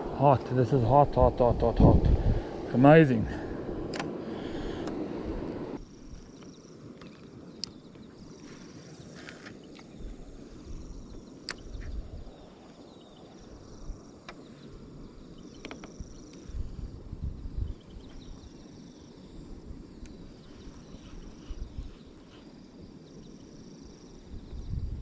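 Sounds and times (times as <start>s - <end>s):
wind rumble on microphone: 0.0s - 6.4s, 7.3s - 23.0s, 23.8s - 25.0s
sharp clicks: 3.9s - 4.2s
insects chirping in trills: 5.7s - 25.0s.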